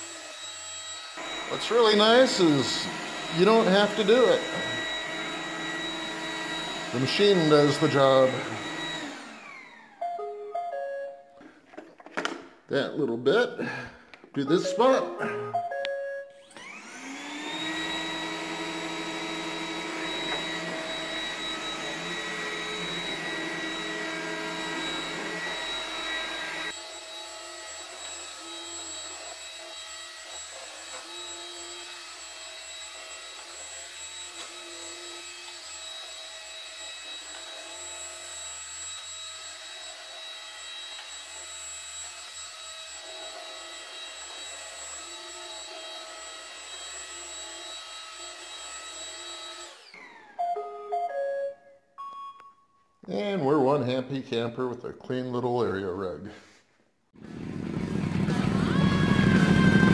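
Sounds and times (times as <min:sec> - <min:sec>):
robot vacuum whining: 0:00.0 - 0:10.4, 0:16.4 - 0:51.1.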